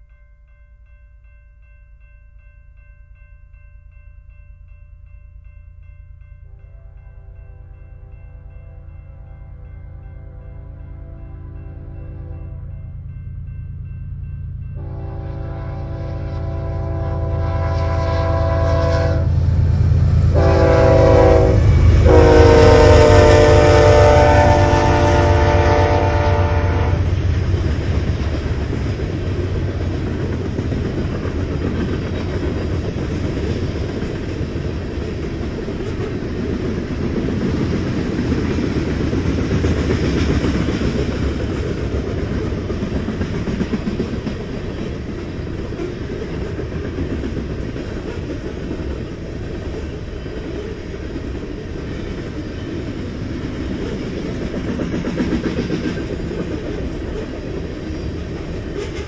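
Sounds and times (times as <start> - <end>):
train horn blasts: 6.5 - 13.0, 14.8 - 27.2.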